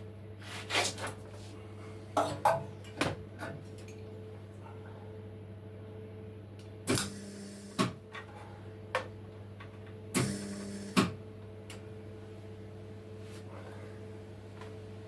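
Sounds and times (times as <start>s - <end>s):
steady hum: 0.0s - 15.0s
welding arc sizzle: 6.9s - 8.0s, 10.2s - 11.1s.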